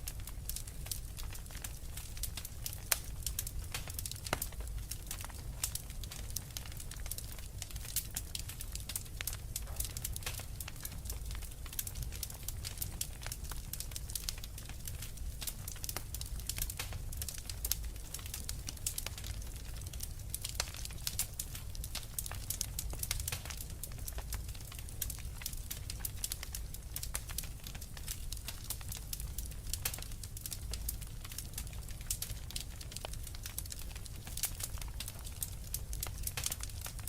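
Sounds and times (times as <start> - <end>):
low fire rumble: 0.0 - 37.0
wood fire pops and snaps: 0.0 - 37.0.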